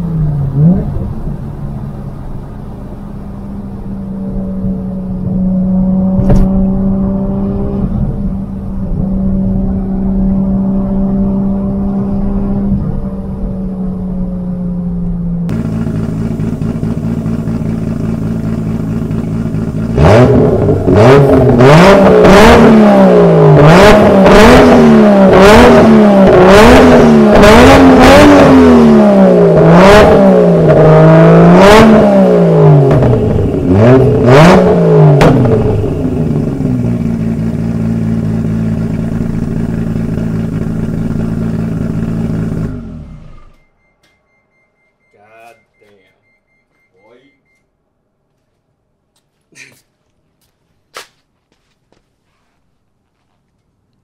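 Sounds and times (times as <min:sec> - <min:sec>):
car engine idling and revving: 0:00.0 - 0:46.9
exhaust crackle: 0:12.7 - 0:43.6.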